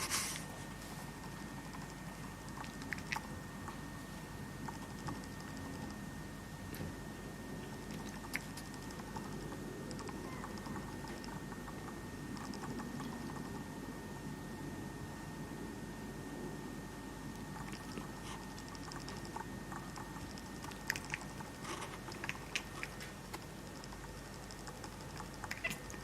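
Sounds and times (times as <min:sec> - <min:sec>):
cat chattering: 0:07.8 - 0:11.4, 0:17.5 - 0:26.0.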